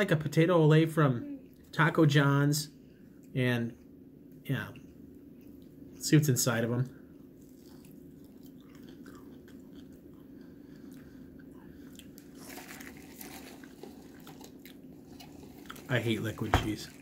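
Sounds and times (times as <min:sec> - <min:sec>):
man crunching and chewing food: 0:07.1 - 0:17.0.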